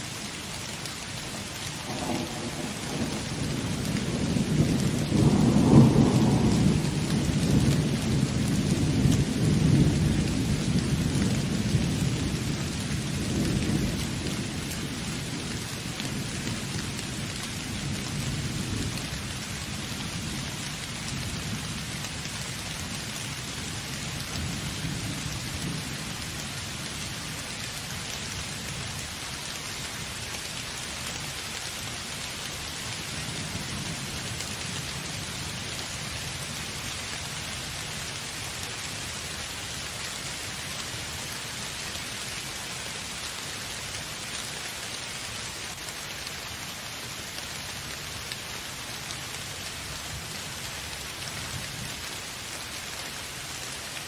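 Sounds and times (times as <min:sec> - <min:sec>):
heavy rain hissing: 0:00.0 - 0:54.0
low rolling thunder: 0:01.8 - 0:14.3.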